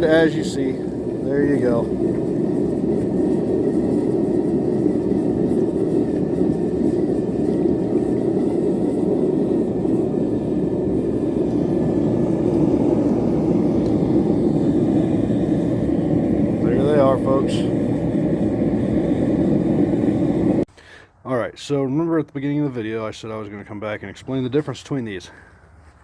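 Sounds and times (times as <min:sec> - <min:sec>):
forge burner roaring: 0:00.0 - 0:20.7.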